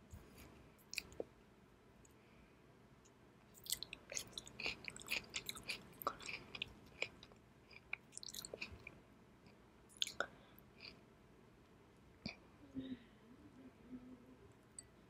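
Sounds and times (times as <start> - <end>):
mouth chewing wet smacks: 3.6 - 8.9.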